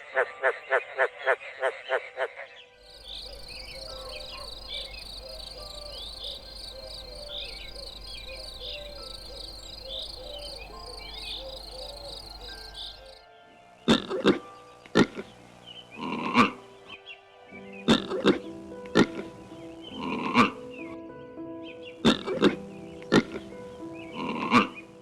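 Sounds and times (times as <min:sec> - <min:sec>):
chorus of chirping animal calls: 0:00.0 - 0:21.0, 0:21.7 - 0:25.0
low steady hum: 0:02.8 - 0:13.2.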